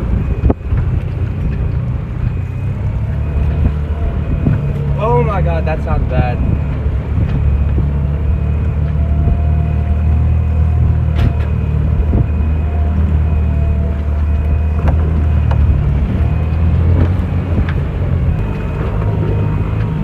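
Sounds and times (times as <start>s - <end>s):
beeping tone: 0.0s - 17.5s, 18.2s - 20.0s
boat engine humming: 0.0s - 20.0s.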